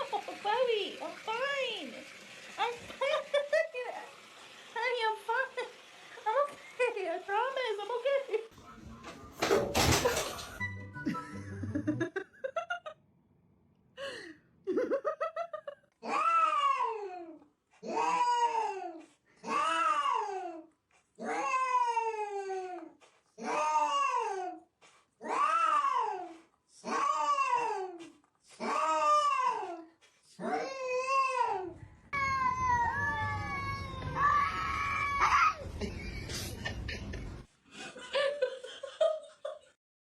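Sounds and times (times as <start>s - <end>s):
cat yowling: 25.2s - 26.2s.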